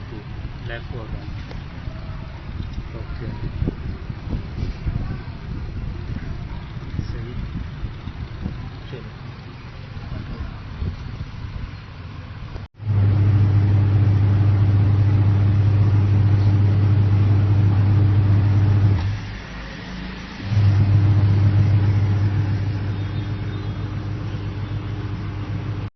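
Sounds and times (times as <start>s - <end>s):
washing machine motor humming: 12.8s - 25.9s.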